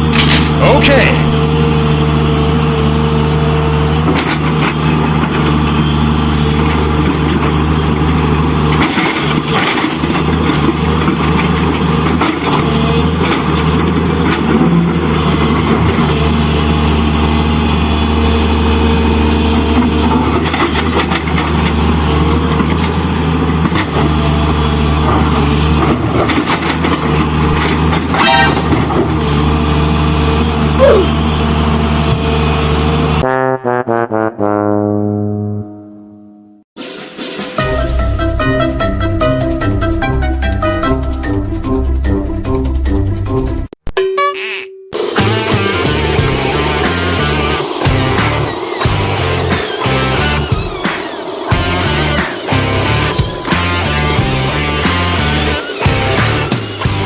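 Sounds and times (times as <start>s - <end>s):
clicks and rattles: 0.0s - 0.6s, 26.4s - 28.2s
engine droning: 45.0s - 57.0s.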